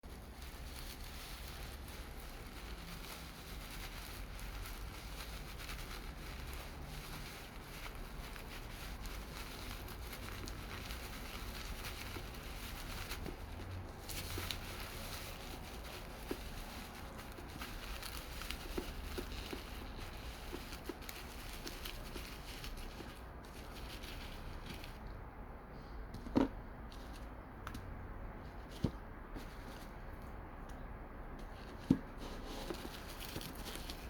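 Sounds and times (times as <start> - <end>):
handling taps and rustles: 7.5 - 25.1, 26.1 - 34.0.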